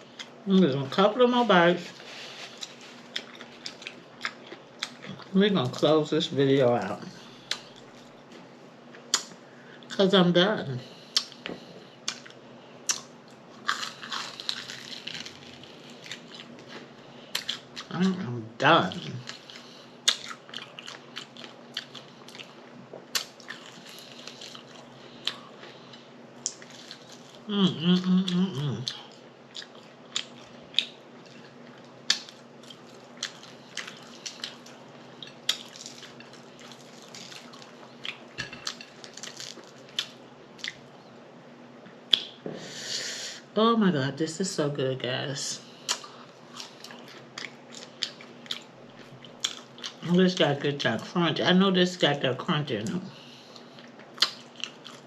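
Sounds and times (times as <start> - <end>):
faint steady hum: 0.0 - 55.0
crunchy chewing: 1.8 - 5.8, 10.9 - 17.9, 18.9 - 41.0, 45.8 - 50.0, 53.2 - 55.0.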